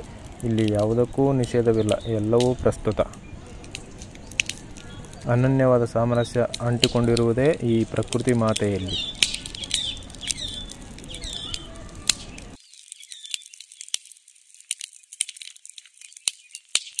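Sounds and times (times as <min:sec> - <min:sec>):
sharp clicks: 0:00.0 - 0:05.5, 0:06.4 - 0:14.1
birds chirping: 0:00.0 - 0:14.0, 0:15.9 - 0:17.0.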